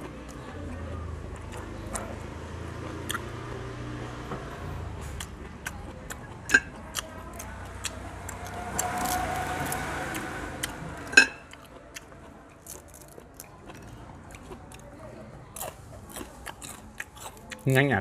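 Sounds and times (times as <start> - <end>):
crisp crunches of chewing: 11.5 - 17.9.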